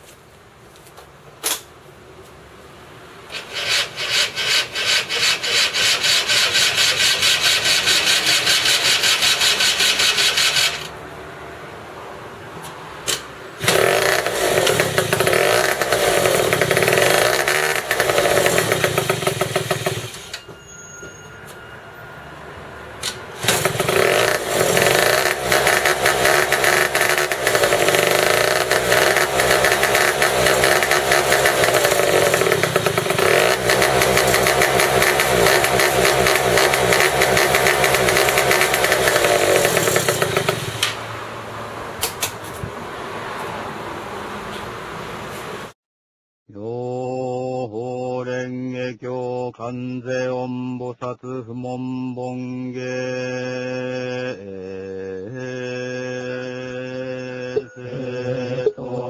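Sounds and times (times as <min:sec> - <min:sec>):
buggy engine revving and idling: 0:05.0 - 0:10.9, 0:13.6 - 0:20.3, 0:23.4 - 0:41.1.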